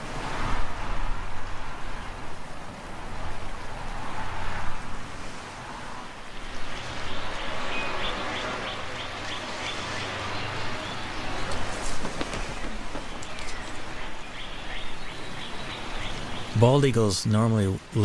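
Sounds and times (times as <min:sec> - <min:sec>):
steady rushing background noise: 0:00.0 - 0:18.0
bird calling high piping notes: 0:06.9 - 0:17.1.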